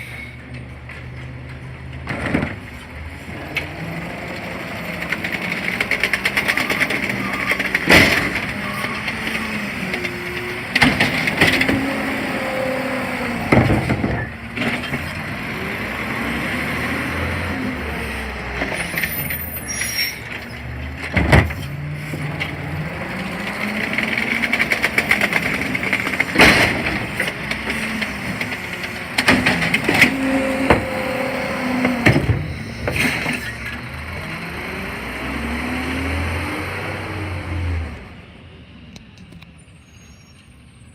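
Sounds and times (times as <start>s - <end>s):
garbage truck engine: 0.0s - 39.8s
loader arm banging: 1.9s - 17.8s, 18.4s - 33.8s.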